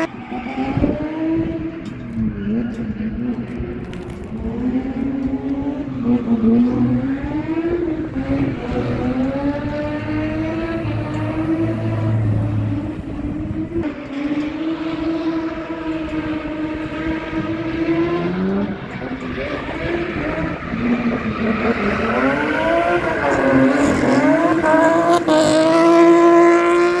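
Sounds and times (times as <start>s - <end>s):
car engine revving hard: 4.5s - 27.0s.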